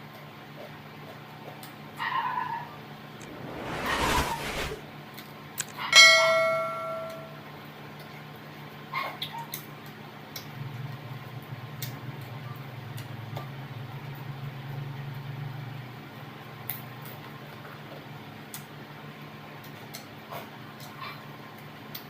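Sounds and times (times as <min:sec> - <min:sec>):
low hum: 0:03.2 - 0:04.8.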